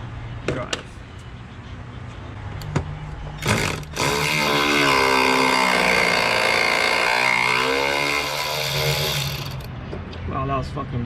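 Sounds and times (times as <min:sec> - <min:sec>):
power tool motor under load: 0:03.4 - 0:09.7.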